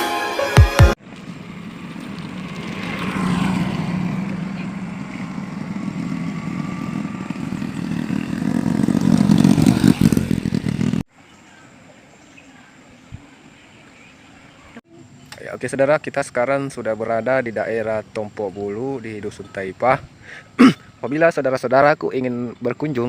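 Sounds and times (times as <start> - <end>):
motorcycle engine running: 1.0 - 11.0.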